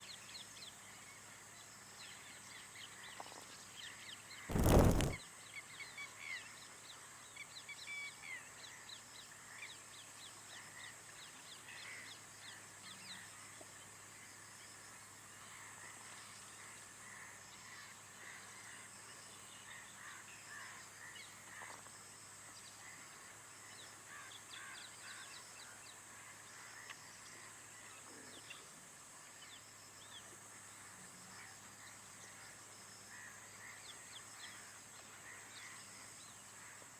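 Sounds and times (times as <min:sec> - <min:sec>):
birds chirping: 0:04.5 - 0:05.2
high-pitched hiss: 0:04.5 - 0:05.2.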